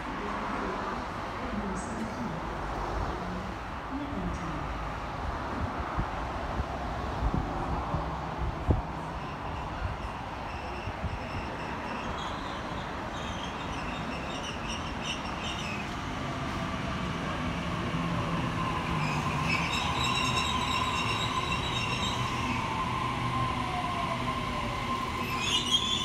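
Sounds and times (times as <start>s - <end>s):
brake squeals: 25.2s - 26.0s.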